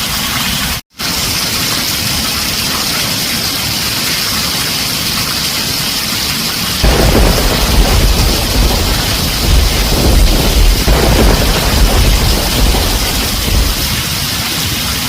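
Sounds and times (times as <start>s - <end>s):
heavy rain on a tin roof: 0.0s - 15.0s
thunder rumbling: 6.8s - 14.5s.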